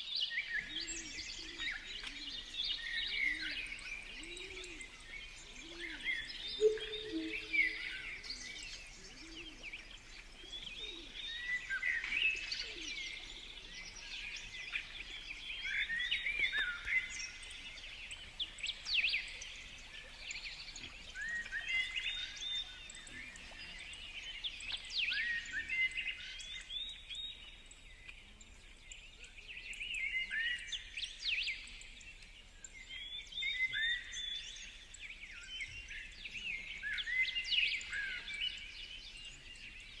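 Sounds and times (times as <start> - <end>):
birds singing and chirping: 0.1 - 40.0
low bird calls: 0.6 - 26.7.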